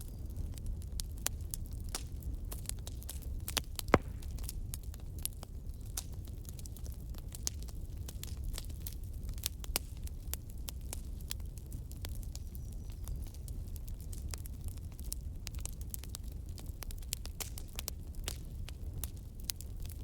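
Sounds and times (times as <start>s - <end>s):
low rumble of flame: 0.0s - 20.0s
wood crackling in fire: 0.0s - 20.0s
sharp pop of burning log: 3.5s - 5.0s.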